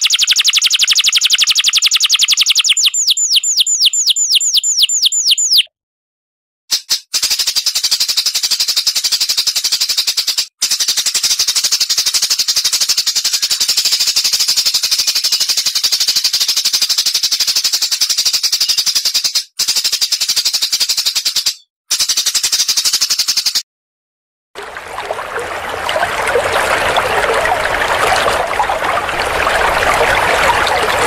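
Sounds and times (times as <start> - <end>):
songbird rattling trill: 0.0 - 5.7.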